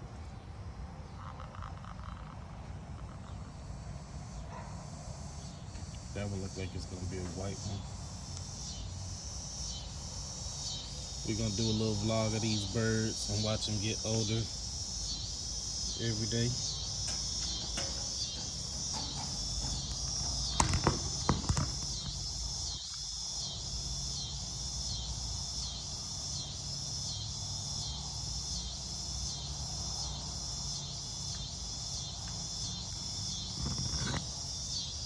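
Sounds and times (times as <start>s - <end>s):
insects chirping: 0.0s - 35.0s
sharp knocks: 17.1s - 22.4s.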